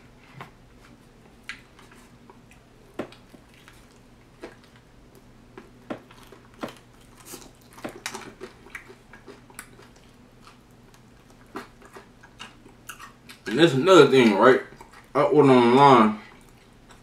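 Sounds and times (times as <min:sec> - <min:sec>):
faint low hum: 0:00.0 - 0:17.0
crunchy chewing: 0:00.8 - 0:13.6.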